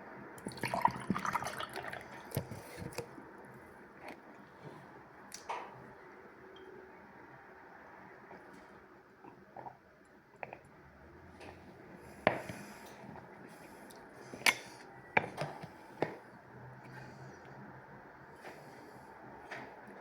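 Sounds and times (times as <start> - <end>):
quiet chewing with crackles: 8.2 - 17.8.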